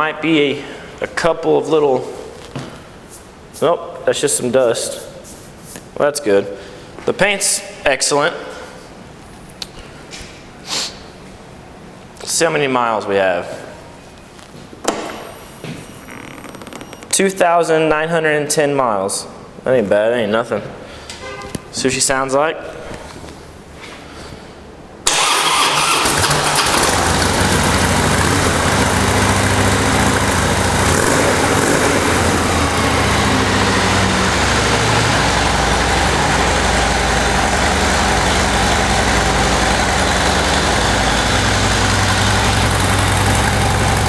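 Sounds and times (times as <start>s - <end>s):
motorcycle engine starting and idling: 25.1s - 44.0s.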